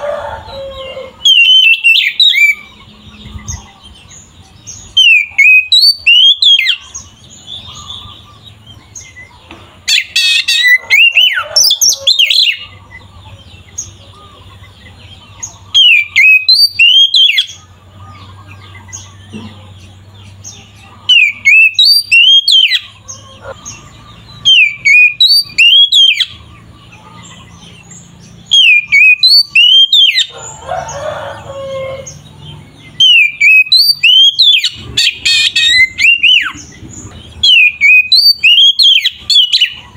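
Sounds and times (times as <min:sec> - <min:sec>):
bird singing whistled notes: 0:01.2 - 0:09.3, 0:15.7 - 0:17.6, 0:21.1 - 0:23.0, 0:24.2 - 0:26.5, 0:27.7 - 0:30.3, 0:32.9 - 0:39.9.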